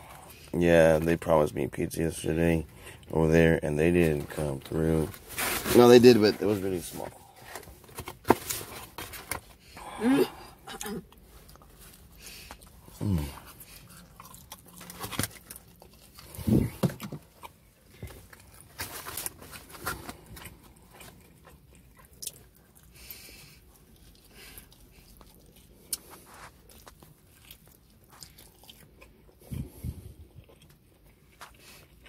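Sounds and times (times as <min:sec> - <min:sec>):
biting and chewing food: 0:10.8 - 0:32.0.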